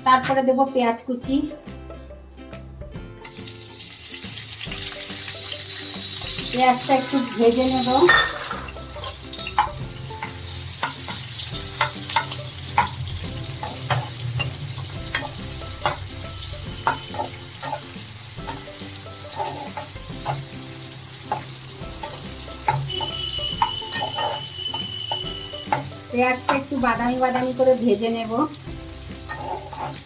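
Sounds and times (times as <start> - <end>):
onion sizzling in oil: 3.1 - 30.0
utensil scraping a pan: 16.7 - 27.7, 29.2 - 30.0.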